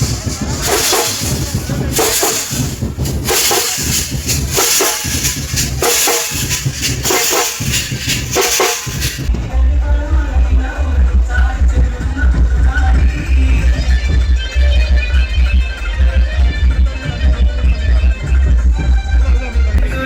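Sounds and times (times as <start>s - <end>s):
drum-led percussion music: 0.0s - 9.5s
bass-heavy music: 0.0s - 20.0s.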